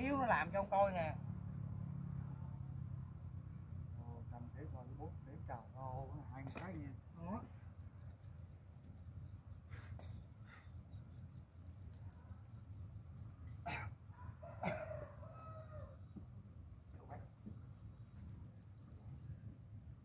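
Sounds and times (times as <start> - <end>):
rooster crowing: 13.7 - 16.3.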